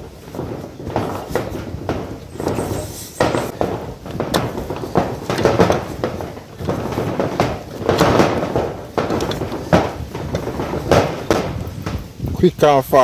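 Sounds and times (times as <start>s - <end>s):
dough thumping against a pot: 0.0s - 12.2s
dough being kneaded by hand: 0.0s - 12.4s.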